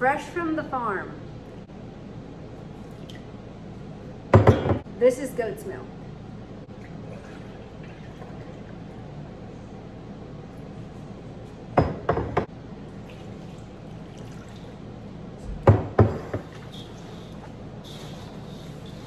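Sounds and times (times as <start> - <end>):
steady low hum: 0.0 - 19.0
kitchen knocks and clinks: 4.4 - 4.8, 11.8 - 12.5, 15.5 - 16.6.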